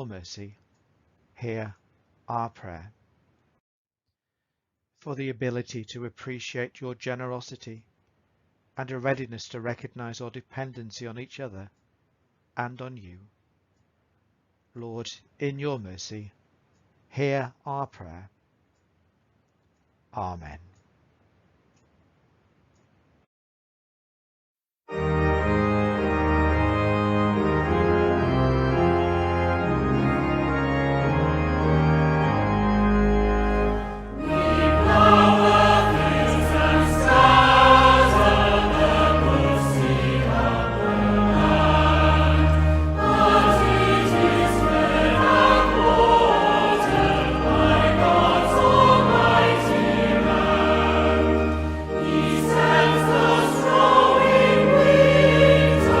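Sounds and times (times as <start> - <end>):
organ playing held chords: 24.9 - 56.0
choir singing a hymn: 26.9 - 56.0.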